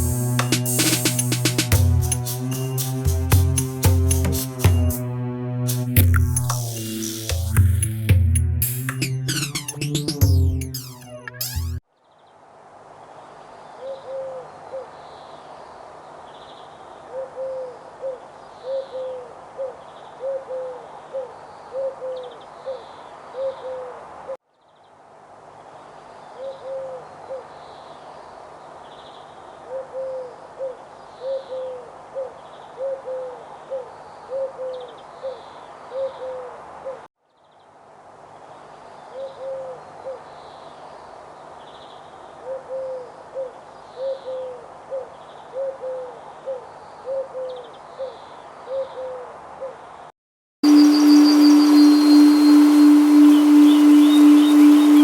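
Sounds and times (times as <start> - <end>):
steady hiss: 0.0 - 3.1, 50.7 - 55.0
high bird chirps: 8.8 - 11.8, 50.6 - 55.0
bird hooting: 17.1 - 23.9, 29.7 - 37.1, 42.4 - 49.8, 50.6 - 55.0.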